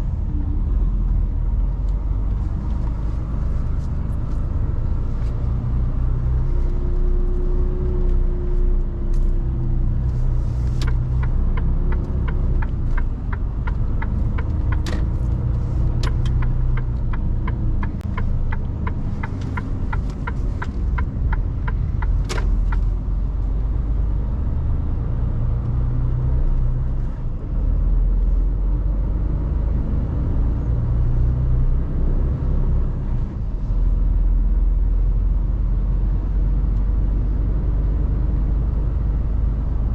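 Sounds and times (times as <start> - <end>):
truck diesel engine rumbling: 0.0 - 29.6
even ticking: 10.8 - 22.9.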